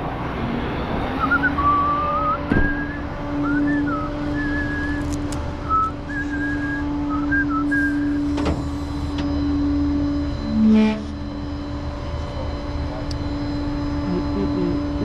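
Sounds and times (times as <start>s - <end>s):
steady engine hum: 0.0s - 15.0s
person whistling a tune: 1.2s - 5.1s, 5.7s - 8.2s.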